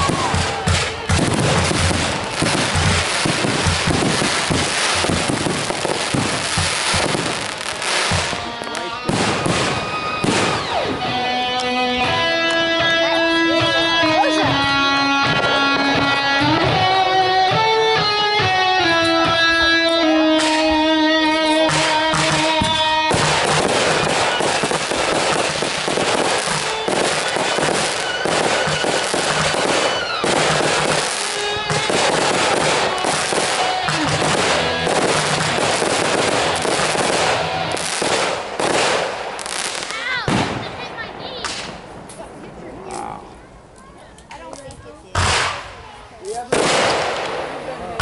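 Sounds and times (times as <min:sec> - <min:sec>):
fireworks banging and crackling: 0:00.0 - 0:48.0
guitar music with held notes: 0:08.1 - 0:09.1, 0:09.9 - 0:37.9.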